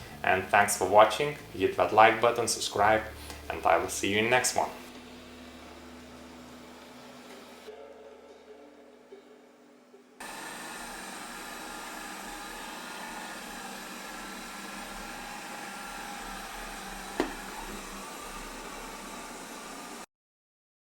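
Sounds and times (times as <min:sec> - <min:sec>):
robot vacuum motor whine: 0:04.0 - 0:07.7, 0:10.2 - 0:20.1.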